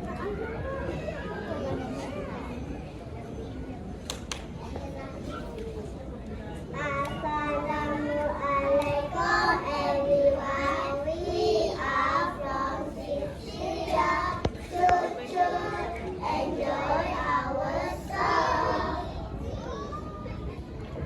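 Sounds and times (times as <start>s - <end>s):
children singing in unison: 7.2s - 19.1s.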